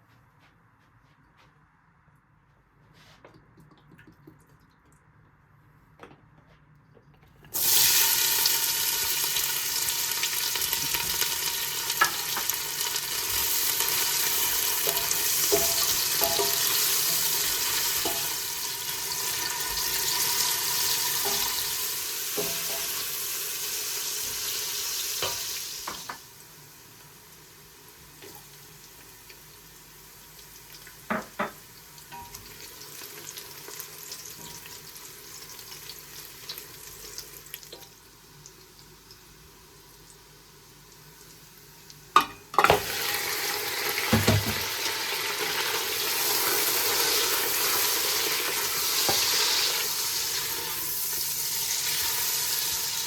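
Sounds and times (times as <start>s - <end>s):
food sizzling in a pan: 7.6s - 53.0s
kitchen knocks: 44.1s - 44.7s.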